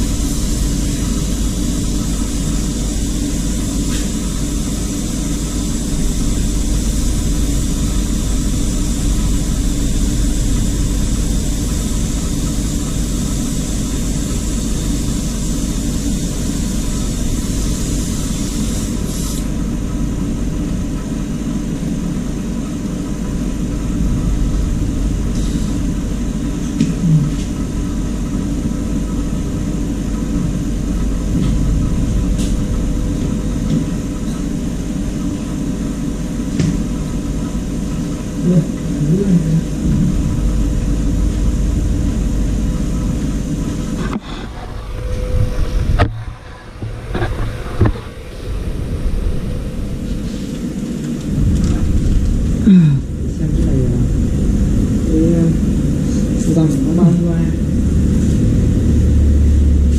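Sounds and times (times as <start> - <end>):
loud rushing rumble: 0.0 - 17.4, 19.5 - 59.9
hiss: 0.0 - 19.8, 23.8 - 27.5.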